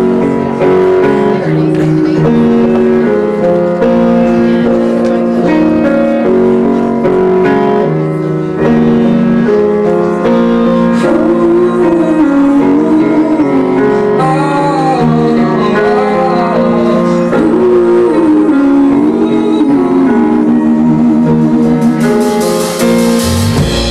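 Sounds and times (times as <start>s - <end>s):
piano playing slow chords: 0.0s - 23.9s
person singing long notes: 10.3s - 22.6s.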